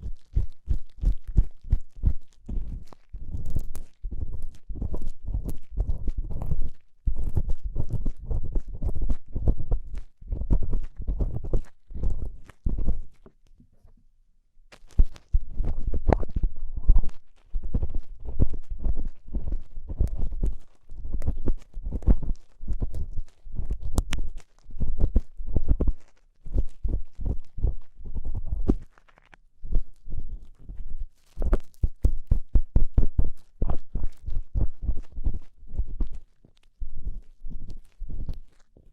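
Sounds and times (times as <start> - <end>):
ear-cleaning tool scratching microphone: 0.0 - 13.2, 15.0 - 26.0.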